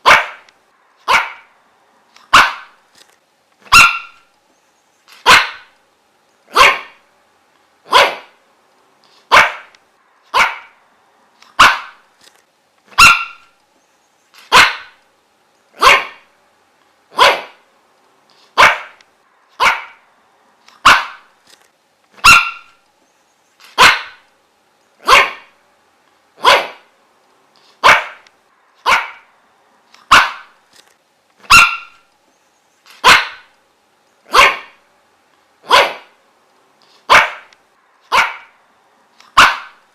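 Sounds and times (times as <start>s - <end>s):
dog barking: 0.0s - 1.5s, 2.3s - 2.8s, 3.7s - 4.3s, 5.2s - 5.7s, 6.5s - 7.0s, 7.9s - 8.4s, 9.3s - 9.7s, 10.3s - 10.8s, 11.6s - 12.0s, 12.9s - 13.5s, 14.5s - 15.0s, 15.8s - 16.3s, 17.1s - 17.6s, 18.6s - 19.0s, 19.6s - 20.0s, 20.8s - 21.3s, 22.2s - 22.8s, 23.8s - 24.2s, 25.0s - 25.6s, 26.4s - 26.9s, 27.8s - 28.2s, 28.8s - 29.3s, 30.1s - 30.6s, 31.4s - 32.0s, 33.0s - 33.5s, 34.3s - 34.8s, 35.6s - 36.2s, 37.1s - 37.5s, 38.1s - 38.6s, 39.3s - 39.8s.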